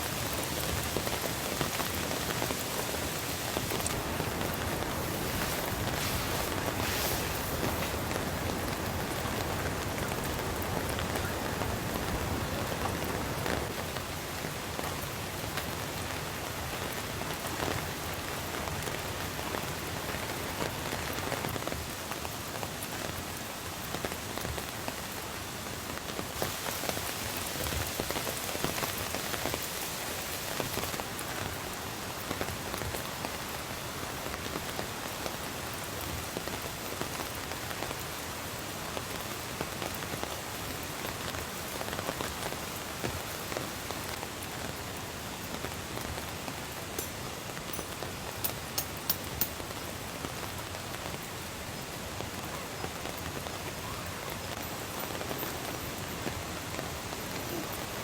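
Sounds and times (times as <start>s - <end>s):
rain falling on a tent: 0.0s - 58.0s.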